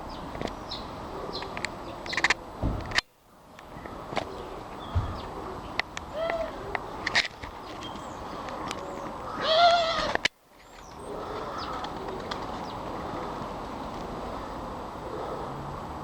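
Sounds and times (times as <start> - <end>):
birds chirping faintly: 3.0 - 15.5
drawn-out rising and falling call: 3.6 - 15.8.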